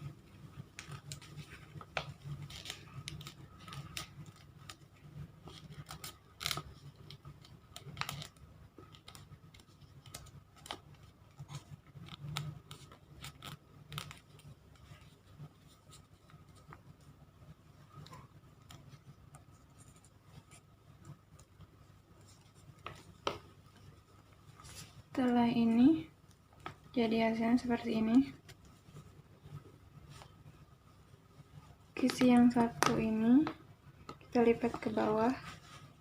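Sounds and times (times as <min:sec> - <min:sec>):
faint low hum: 0:00.0 - 0:36.0
paper being folded and creased: 0:00.5 - 0:16.8, 0:17.8 - 0:25.8, 0:34.0 - 0:36.0.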